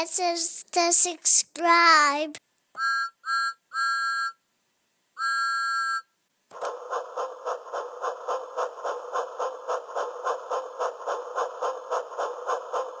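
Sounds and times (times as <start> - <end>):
rhythmic train-like chugging: 6.5 - 13.0.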